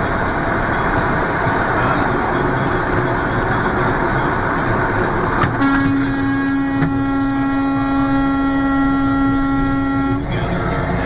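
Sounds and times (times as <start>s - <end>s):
car road and engine noise: 0.0s - 11.0s
vehicle horn held: 5.4s - 10.3s.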